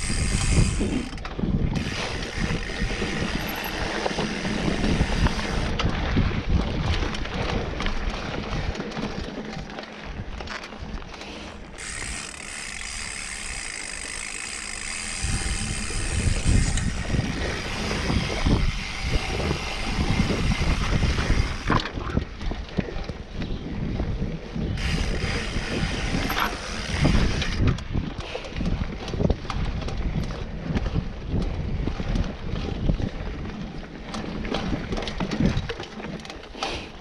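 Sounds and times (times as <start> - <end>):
freehub ratchet buzzing: 0.0 - 5.7, 11.7 - 21.7, 24.8 - 27.7
bike jolts over roots: 0.0 - 37.0
knobby tyres rumbling: 0.0 - 37.0.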